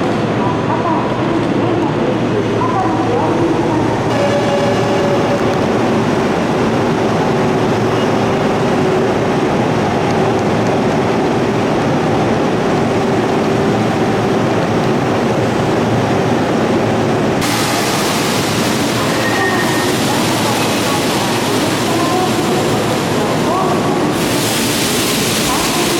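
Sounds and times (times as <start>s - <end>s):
electric train rumbling: 0.0s - 25.9s.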